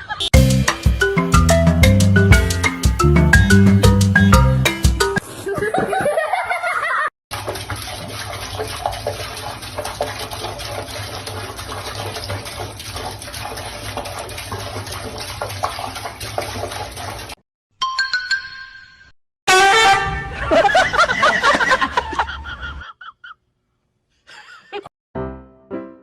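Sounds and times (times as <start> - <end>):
running water rushing: 7.3 - 17.4.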